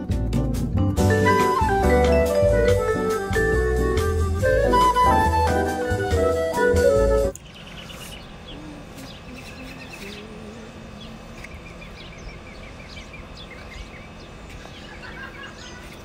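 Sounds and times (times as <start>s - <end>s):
small birds chirping: 7.3s - 16.0s.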